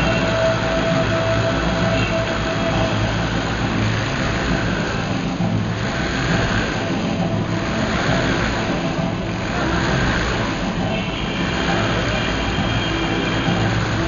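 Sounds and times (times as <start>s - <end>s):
motorcycle engines circling: 0.0s - 14.0s.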